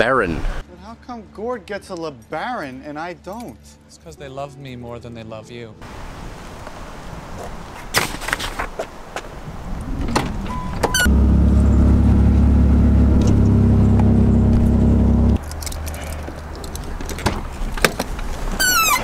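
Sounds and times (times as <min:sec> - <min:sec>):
brief rising whine: 0:11.0 - 0:15.4
car engine running: 0:11.0 - 0:15.4.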